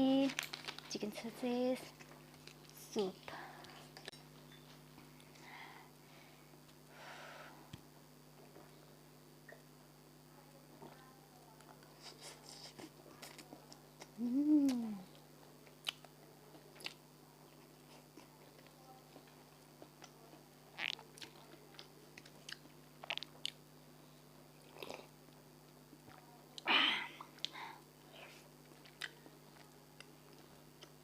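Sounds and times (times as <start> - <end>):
crunchy eating bites: 19.8 - 23.6.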